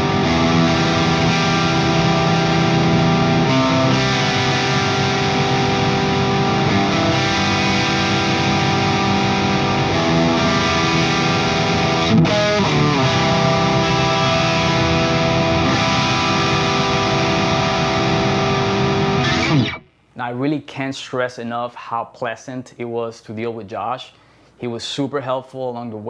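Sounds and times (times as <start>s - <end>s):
distorted electric guitar chords: 0.0s - 20.0s.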